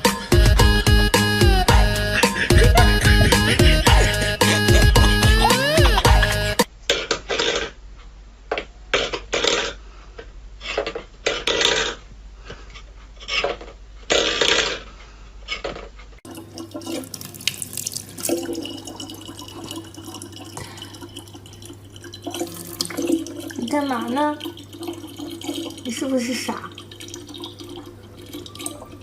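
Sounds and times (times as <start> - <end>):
water running: 0.0 - 6.7, 16.2 - 29.0
water splashing: 16.2 - 29.0
low steady hum: 16.3 - 29.0.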